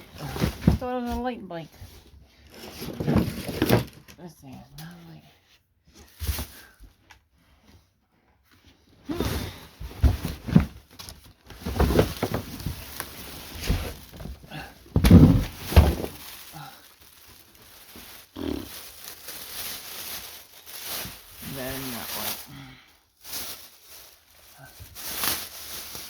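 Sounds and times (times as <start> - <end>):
cardboard rustling: 0.0 - 4.1, 9.2 - 22.5, 23.2 - 26.0
heavy thumps and knocks on box: 13.6 - 16.2.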